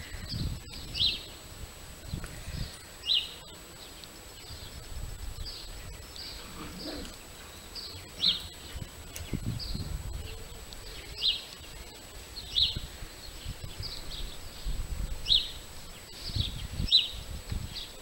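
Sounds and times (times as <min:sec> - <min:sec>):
birds chirping: 0:00.0 - 0:01.4, 0:02.0 - 0:18.0.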